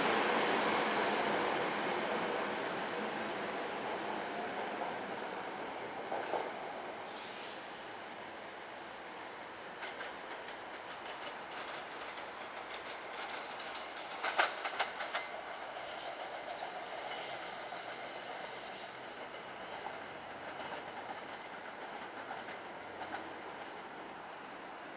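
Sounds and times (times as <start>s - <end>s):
train rumble: 0.0s - 24.9s
train wheels clacking over rail joints: 9.7s - 24.0s.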